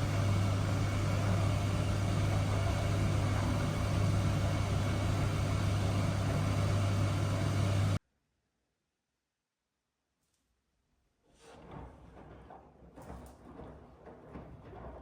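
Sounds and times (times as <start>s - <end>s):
washing machine running: 0.0s - 8.0s, 11.6s - 15.0s.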